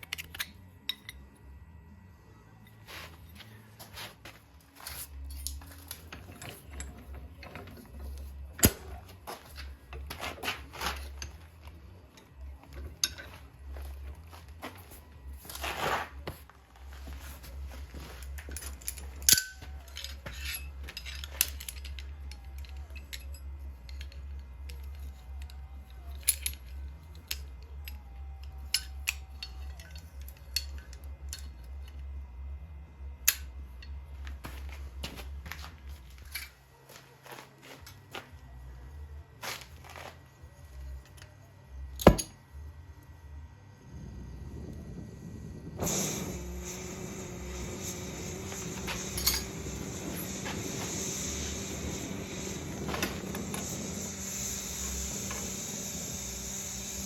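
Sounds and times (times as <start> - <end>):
steady low hum: 0.0 - 57.0
metallic clinks and knocks: 18.2 - 28.0
metal scraping rattle: 45.8 - 57.0.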